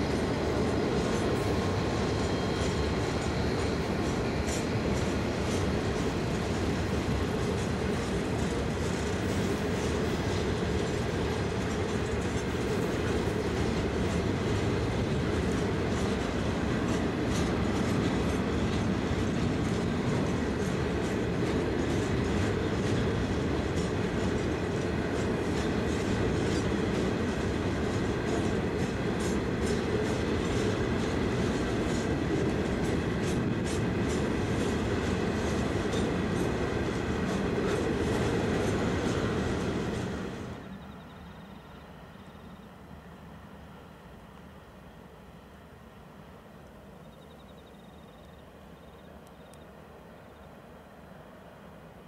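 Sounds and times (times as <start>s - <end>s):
wheels clicking over rail joints: 0.0s - 41.0s
steel wheels rumbling on rail: 0.0s - 52.0s.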